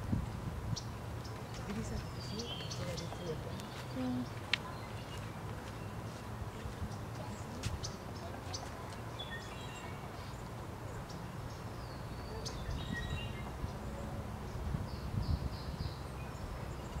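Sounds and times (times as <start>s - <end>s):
birds chirping and whistling: 0.8s - 5.2s, 11.0s - 17.0s.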